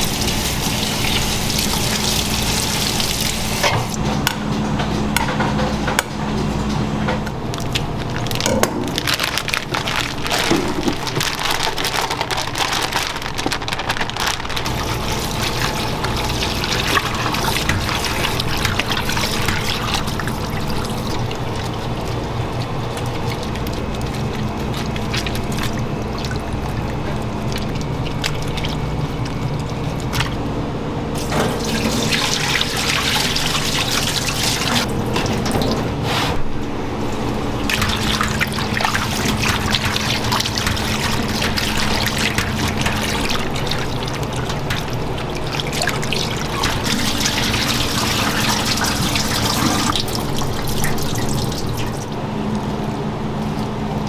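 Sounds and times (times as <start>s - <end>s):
low machine hum: 0.0s - 54.0s
tap water splashing into sink: 31.2s - 35.8s, 37.7s - 52.1s.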